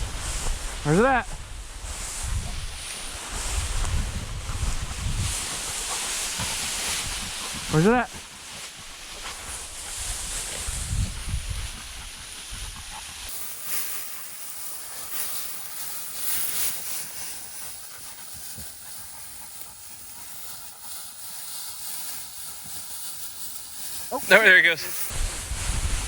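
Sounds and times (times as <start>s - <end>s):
wind rumble on microphone: 0.0s - 5.7s, 10.0s - 12.8s, 25.1s - 26.0s
dry grass and brush rustling: 13.2s - 26.0s.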